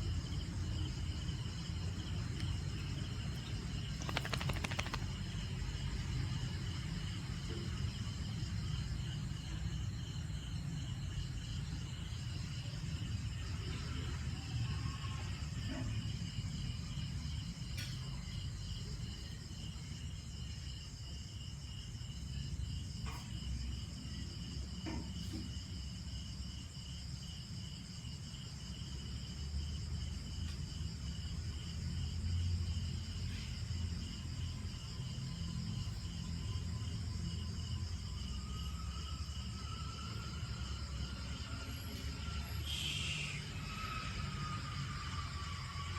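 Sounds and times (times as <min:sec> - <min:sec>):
crickets chirring: 0:00.0 - 0:45.9.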